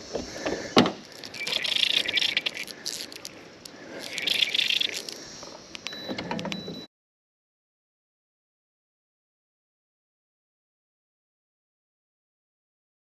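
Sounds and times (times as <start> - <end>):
fly reel clicker ratcheting: 1.0 - 5.2.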